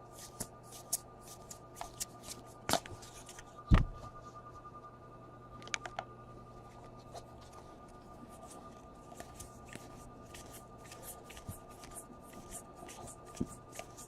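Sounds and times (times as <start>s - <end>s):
cards flicking and rustling: 0.0s - 3.9s, 6.8s - 14.0s
faint steady hum: 0.0s - 14.0s.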